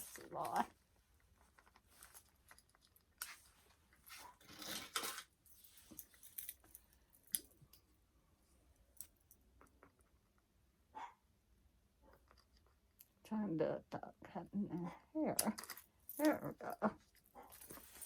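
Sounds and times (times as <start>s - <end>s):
plastic doll clicks and rustles: 0.0s - 5.4s.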